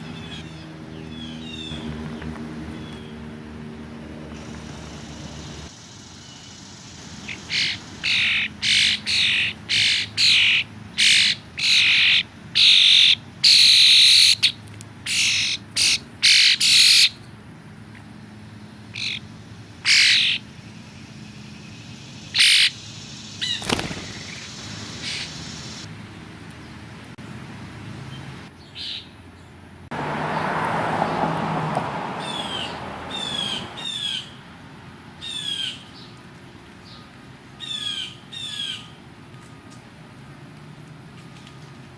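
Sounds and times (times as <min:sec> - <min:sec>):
crows cawing: 0:07.5 - 0:14.4, 0:19.8 - 0:20.4.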